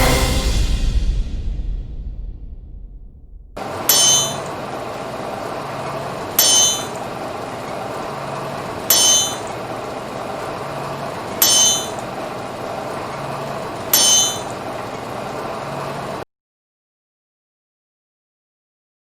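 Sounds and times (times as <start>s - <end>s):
hammer striking anvil: 3.6s - 5.0s, 5.8s - 14.8s.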